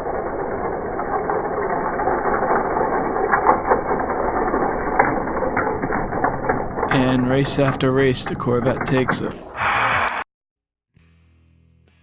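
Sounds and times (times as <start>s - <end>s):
toy cars rattling down track: 0.0s - 8.3s
sharp clicks: 9.6s - 10.2s.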